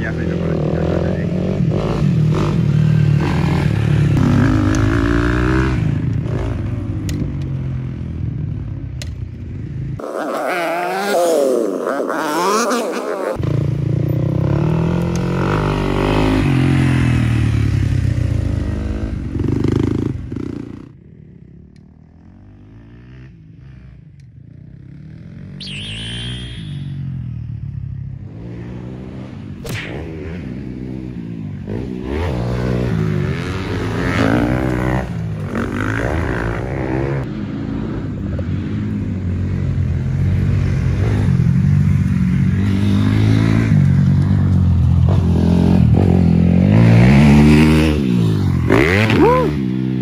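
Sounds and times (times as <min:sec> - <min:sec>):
dirt bike engine revving: 0:00.0 - 0:06.7, 0:10.0 - 0:20.8, 0:28.3 - 0:38.0, 0:45.1 - 0:50.0.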